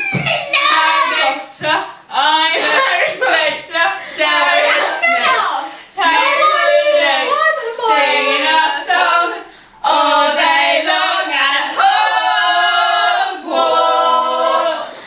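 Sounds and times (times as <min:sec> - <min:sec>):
young voices singing a cappella: 0:00.0 - 0:15.0.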